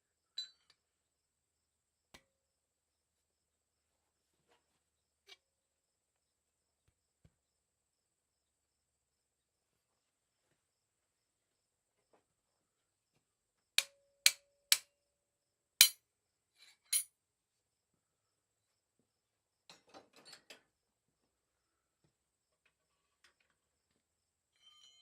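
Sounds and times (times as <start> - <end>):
faint metal clinks: 0.3 - 0.8
hammer striking steel: 13.8 - 14.8.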